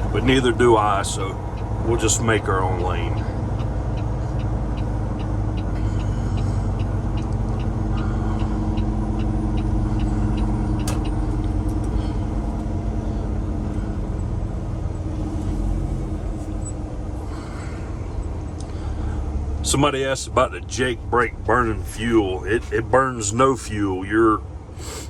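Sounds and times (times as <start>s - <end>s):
truck diesel engine running: 0.0s - 25.0s
turn signal clicking: 2.8s - 17.1s.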